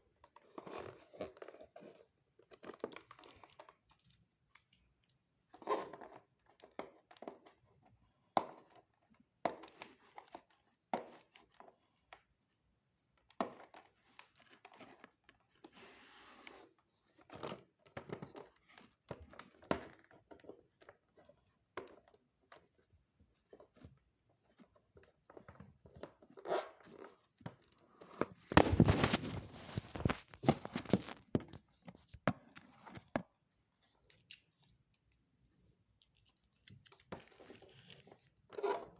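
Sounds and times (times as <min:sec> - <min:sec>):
packaging crinkling and rustling: 0:28.0 - 0:33.2.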